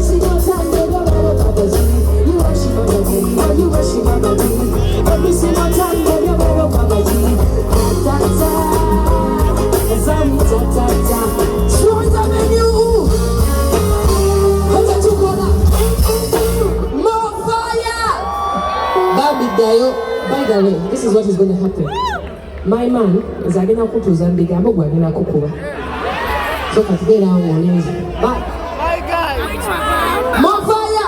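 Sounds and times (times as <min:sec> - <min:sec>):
heavy bass beat: 0:00.0 - 0:16.8
person singing: 0:00.0 - 0:16.8.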